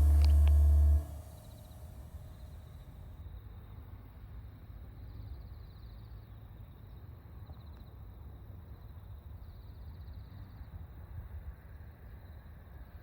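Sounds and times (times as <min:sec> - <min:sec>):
low rumble: 0:00.0 - 0:01.4.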